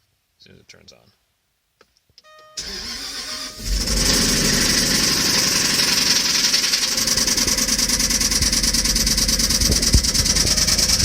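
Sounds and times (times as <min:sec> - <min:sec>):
car engine idling: 0:02.6 - 0:11.0
rapid even engine knocking: 0:03.7 - 0:11.0
loud thump: 0:09.5 - 0:11.0.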